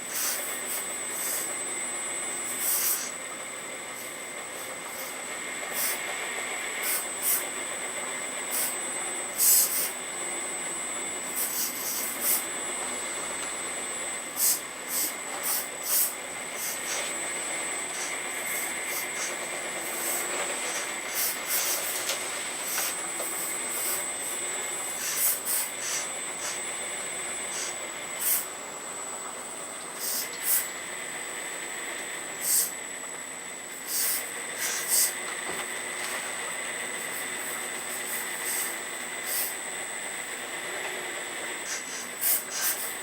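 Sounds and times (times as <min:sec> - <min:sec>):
hydraulic hiss bursts: 0:00.0 - 0:01.6, 0:02.4 - 0:03.2, 0:04.0 - 0:06.1, 0:06.7 - 0:07.5, 0:08.5 - 0:10.0, 0:11.3 - 0:12.5, 0:14.3 - 0:26.7, 0:27.4 - 0:28.5, 0:30.0 - 0:30.8, 0:32.4 - 0:32.8, 0:33.7 - 0:35.2, 0:37.0 - 0:39.6, 0:41.6 - 0:43.0
hydraulic pump whining: 0:00.0 - 0:28.9.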